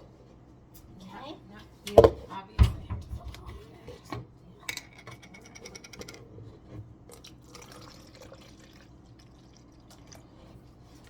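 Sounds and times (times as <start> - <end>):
tea pouring into a cup: 7.0 - 11.0.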